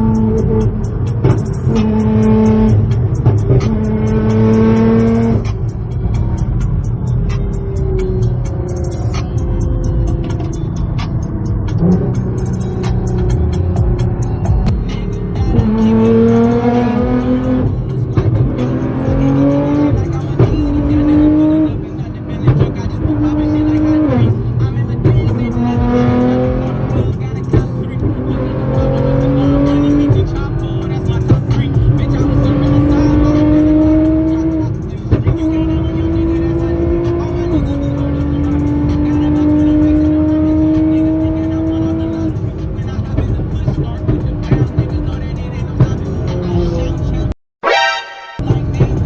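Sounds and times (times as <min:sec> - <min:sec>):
exhaust crack: 0:00.0 - 0:37.8
sports car engine accelerating: 0:00.0 - 0:47.3, 0:48.4 - 0:49.0.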